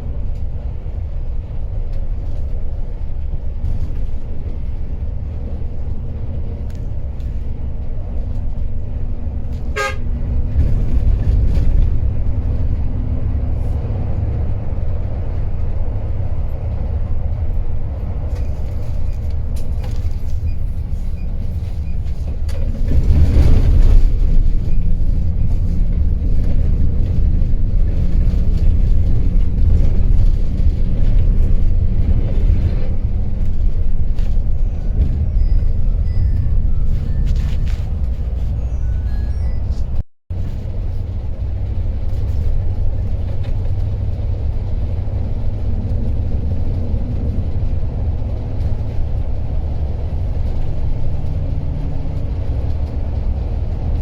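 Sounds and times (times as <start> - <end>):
coach engine and road rumble: 0.0 - 54.0
horn toots: 9.7 - 10.8.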